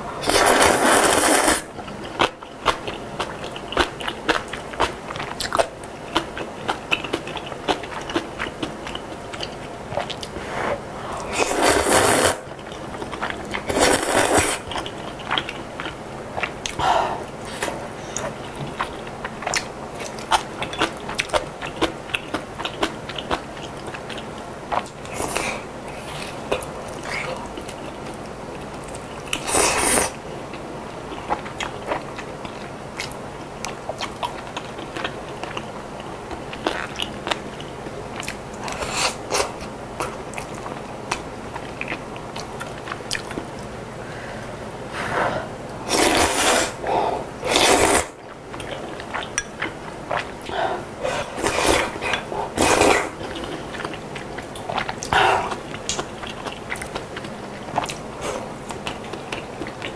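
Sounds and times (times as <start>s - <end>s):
chewing and crunching food: 0.2s - 10.5s, 11.1s - 43.8s, 45.8s - 59.9s.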